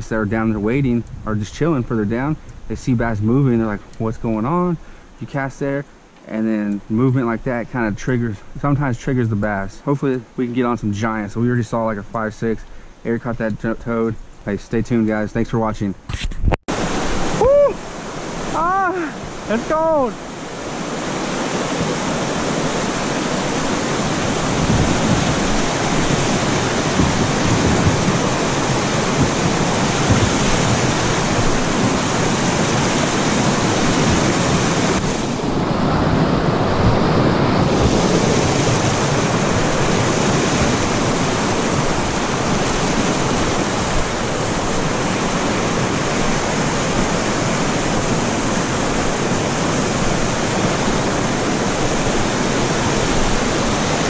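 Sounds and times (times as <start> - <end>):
river water over rapids: 16.7 - 54.0.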